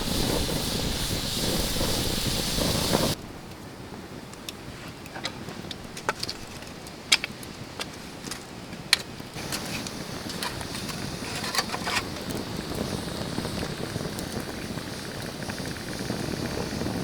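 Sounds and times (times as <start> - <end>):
sharp fire pops: 0.0 - 3.2, 9.4 - 17.0
campfire crackling: 0.0 - 4.6, 5.4 - 8.1, 8.7 - 17.0
steady hiss: 0.0 - 5.0, 9.3 - 17.0.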